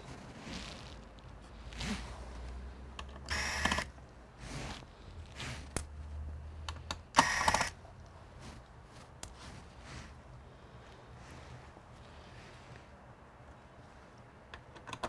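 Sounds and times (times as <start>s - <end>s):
sharp clicks: 6.7s - 7.8s.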